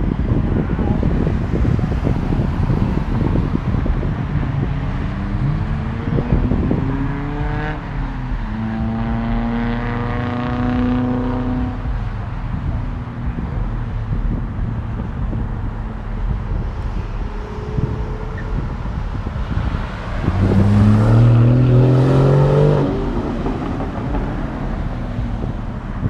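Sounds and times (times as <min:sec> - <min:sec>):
wind on microphone: 0:00.0 - 0:26.0
low rumble: 0:11.6 - 0:26.0
car accelerating past: 0:16.7 - 0:25.5.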